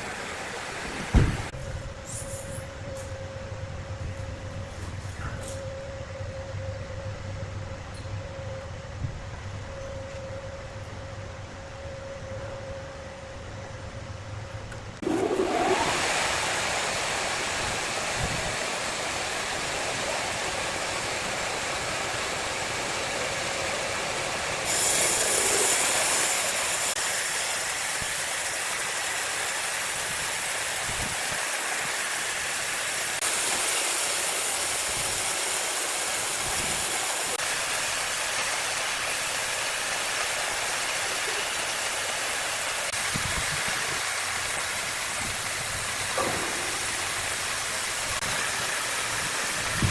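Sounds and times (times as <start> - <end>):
wood saw cutting timber: 24.6 - 30.0.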